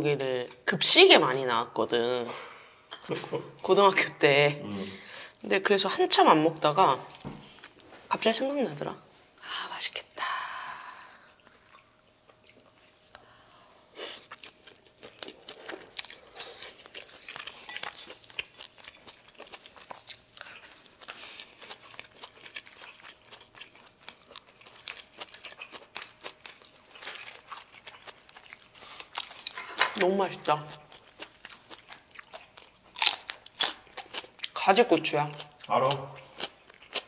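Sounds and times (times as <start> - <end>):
person chewing food: 11.2 - 34.6, 35.3 - 37.0.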